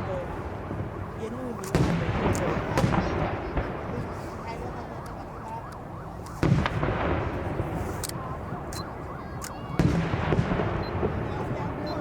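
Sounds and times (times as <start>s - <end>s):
sharp firework cracks: 1.6s - 4.1s, 6.3s - 11.6s
fireworks booming: 1.7s - 4.9s, 6.3s - 8.7s, 9.5s - 12.0s.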